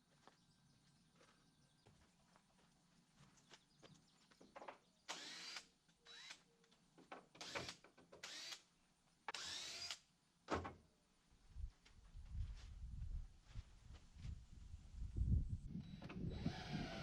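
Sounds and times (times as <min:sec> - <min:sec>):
cordless drill driving screws: 0:05.1 - 0:06.4, 0:07.4 - 0:08.7, 0:09.3 - 0:10.0, 0:15.8 - 0:17.0.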